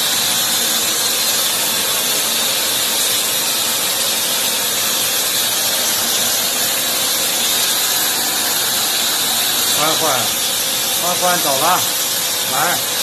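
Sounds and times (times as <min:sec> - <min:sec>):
steady high hiss: 0:07.2 - 0:13.0.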